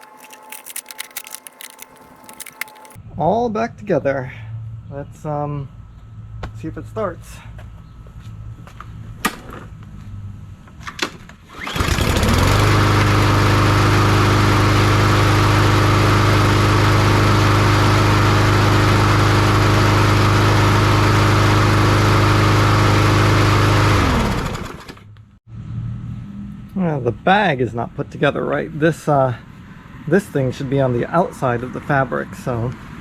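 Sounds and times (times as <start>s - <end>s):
lawn mower engine running: 11.5s - 25.1s.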